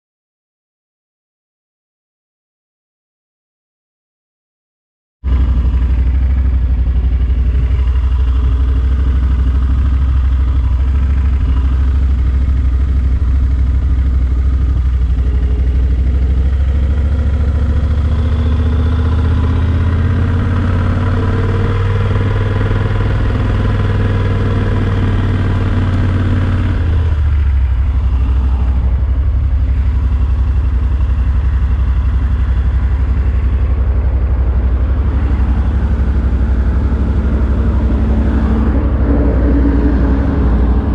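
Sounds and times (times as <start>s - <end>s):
motorcycle engine running: 5.2s - 40.9s.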